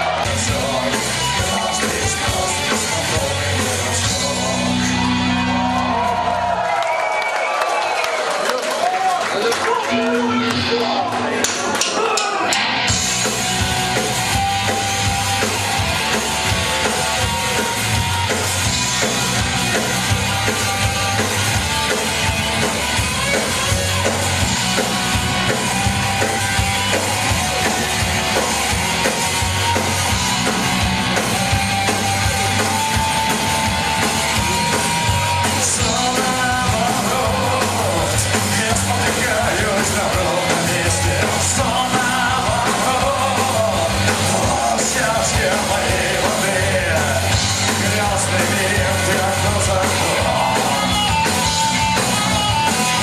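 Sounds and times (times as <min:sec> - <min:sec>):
drum kit beat: 0:00.0 - 0:05.6, 0:11.4 - 0:53.0
punk rock band playing: 0:00.0 - 0:06.8, 0:09.5 - 0:53.0.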